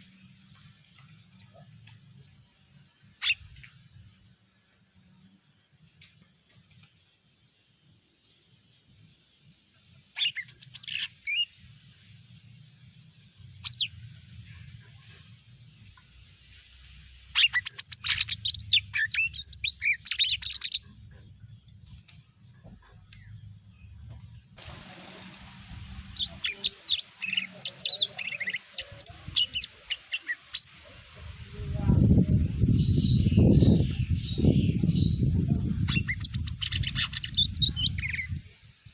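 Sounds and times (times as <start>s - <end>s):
faint hiss: 2.5s - 20.8s, 24.6s - 34.4s
bird chirping: 10.1s - 11.6s, 13.6s - 14.6s, 17.2s - 24.6s, 25.9s - 30.8s, 32.6s - 38.4s
bird chirping and whistling: 13.6s - 13.9s, 17.4s - 20.8s, 35.8s - 38.4s.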